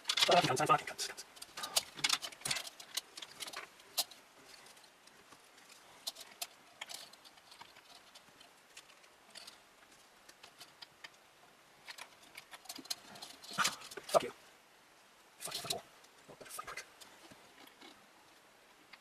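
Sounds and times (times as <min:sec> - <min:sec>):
handling computer parts clicks: 0:01.5 - 0:04.2.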